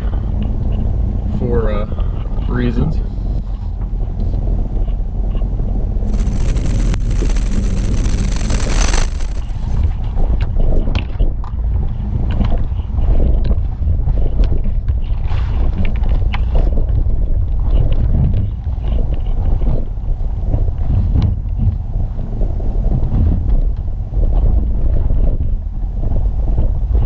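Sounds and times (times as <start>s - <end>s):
vehicle engine low rumble: 0.0s - 10.6s
wind noise on microphone: 3.1s - 10.9s
gravel crackling under tyres: 3.2s - 10.6s.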